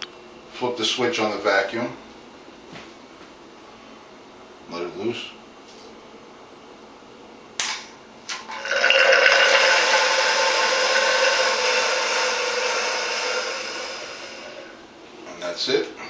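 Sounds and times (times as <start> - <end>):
vacuum pump running: 8.3 - 15.0.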